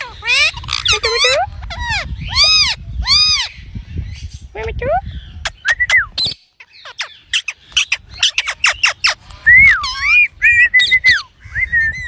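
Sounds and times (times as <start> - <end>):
parrot chirping and whistling: 5.4 - 12.0.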